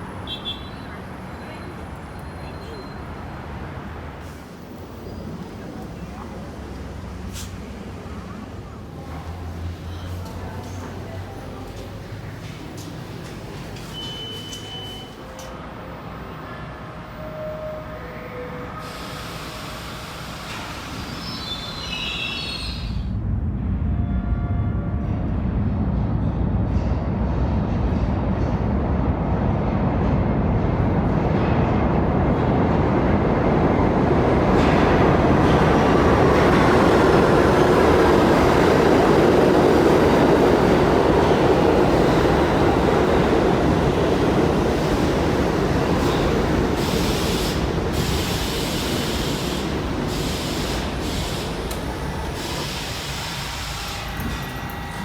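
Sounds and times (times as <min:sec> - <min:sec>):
subway train wheels rumbling: 0:00.0 - 0:55.0.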